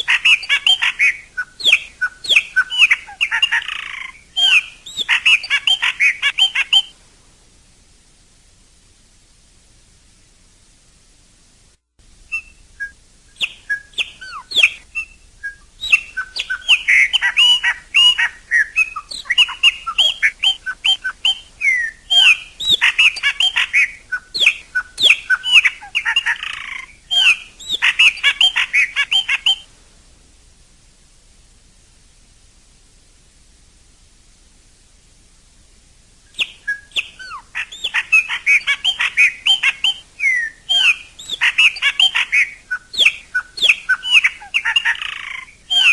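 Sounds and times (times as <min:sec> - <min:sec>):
blackbird singing: 0:00.0 - 0:06.9, 0:12.3 - 0:29.6, 0:36.4 - 0:45.9.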